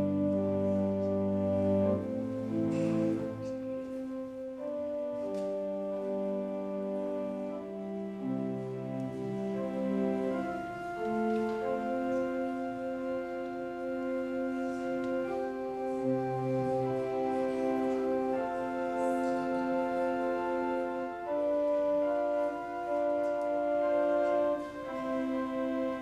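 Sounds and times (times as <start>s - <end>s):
organ chords: 0.0s - 26.0s.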